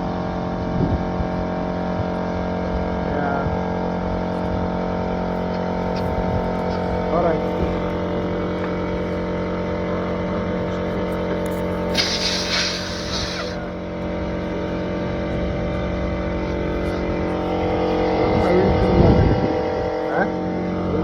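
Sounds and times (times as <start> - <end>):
engine idling: 2.1 - 18.6
air hissing: 11.9 - 13.7.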